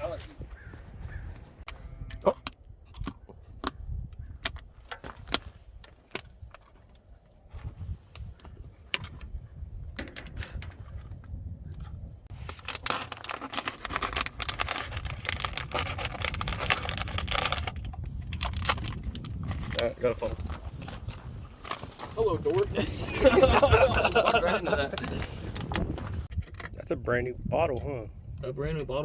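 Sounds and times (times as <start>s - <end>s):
sharp clicks and knocks: 9.9s - 11.3s
dense crackling rustle: 12.2s - 26.4s.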